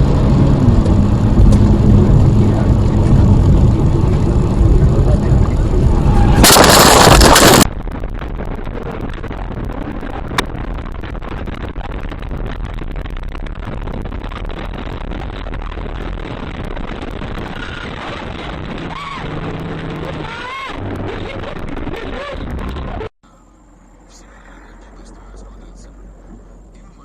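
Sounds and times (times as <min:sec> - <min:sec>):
car road and engine noise: 0:00.0 - 0:27.0.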